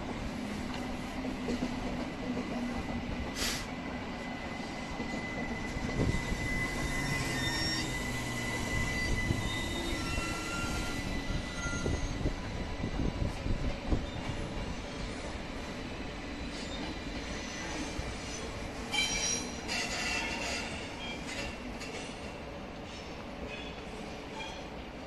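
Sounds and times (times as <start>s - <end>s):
train wheels grinding on rails: 0.0s - 24.7s
brief hiss: 3.4s - 3.7s
high wheel squeals: 4.6s - 12.6s, 16.4s - 21.6s.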